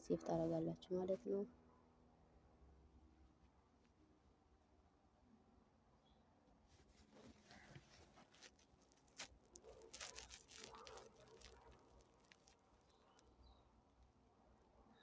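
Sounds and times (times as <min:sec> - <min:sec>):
faint clicks and rustles: 0:06.7 - 0:14.1.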